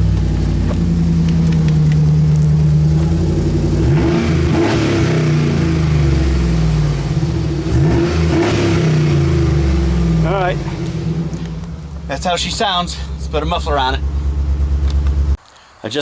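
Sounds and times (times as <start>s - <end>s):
loud truck engine idling and revving: 0.0s - 15.4s.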